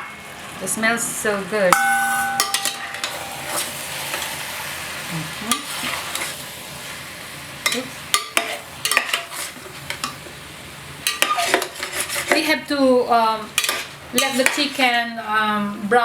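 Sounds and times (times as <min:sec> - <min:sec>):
chicken sizzling in hot oil: 0:00.0 - 0:15.0
cooking utensil clacking and scraping: 0:01.8 - 0:04.6, 0:05.5 - 0:06.4, 0:07.6 - 0:10.4, 0:11.0 - 0:12.6, 0:13.6 - 0:15.0.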